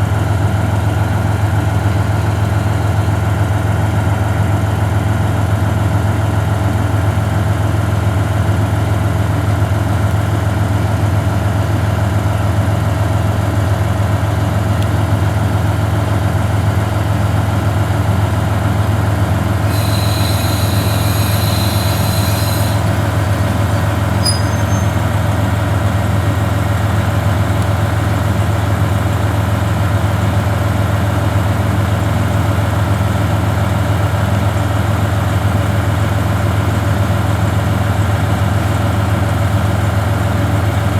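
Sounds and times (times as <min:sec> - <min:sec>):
diesel railcar engine idling: 0:00.0 - 0:40.9
high electronic tone: 0:19.7 - 0:25.0
brief faint tones: 0:19.7 - 0:25.2.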